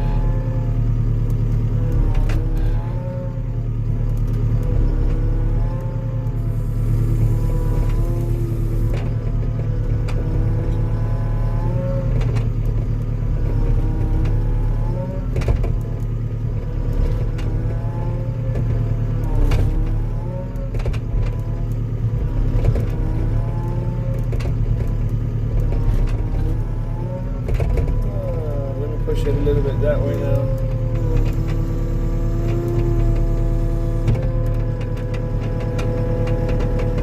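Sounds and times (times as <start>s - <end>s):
skid steer engine under load: 0.0s - 37.0s
hydraulic whine: 6.3s - 10.9s, 25.7s - 37.0s.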